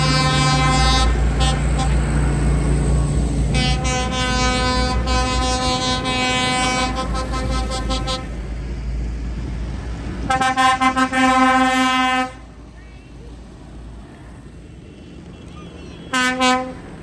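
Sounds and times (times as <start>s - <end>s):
tractor horn tooting: 0.0s - 8.4s, 10.2s - 13.1s, 14.9s - 17.0s
low rumble of tractor engines: 0.0s - 17.0s.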